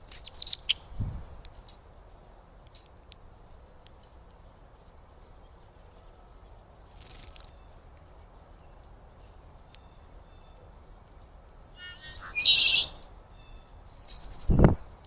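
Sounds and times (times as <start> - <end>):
low background rumble and hiss: 0.0 - 15.0
bird chirps: 0.2 - 0.9, 8.6 - 11.0, 11.8 - 14.6.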